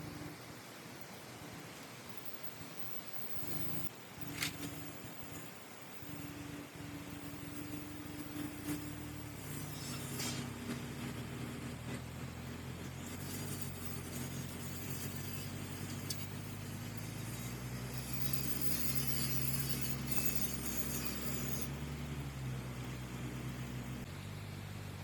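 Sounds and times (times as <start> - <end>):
diesel engine running: 6.0 - 25.0.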